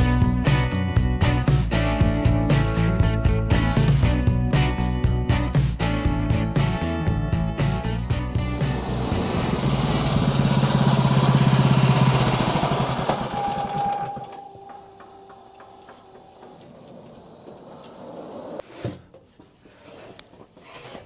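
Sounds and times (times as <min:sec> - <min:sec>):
small engine running: 0:08.2 - 0:18.6
single tone: 0:12.7 - 0:17.4.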